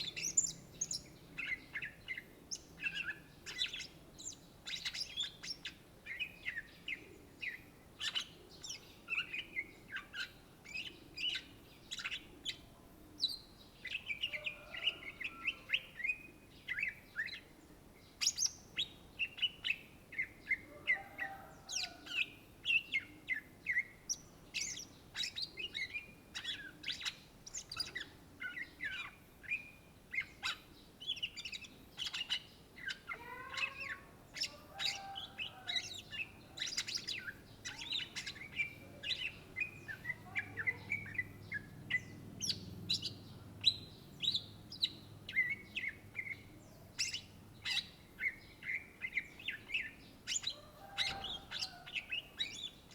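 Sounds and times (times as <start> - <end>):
bird singing whistles and chirps: 0.0 - 6.7, 24.6 - 52.9.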